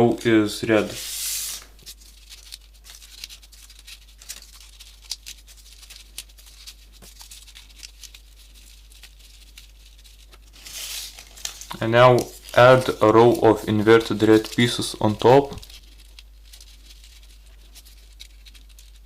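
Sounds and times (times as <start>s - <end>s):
paper clicks and rustles: 1.8s - 19.0s.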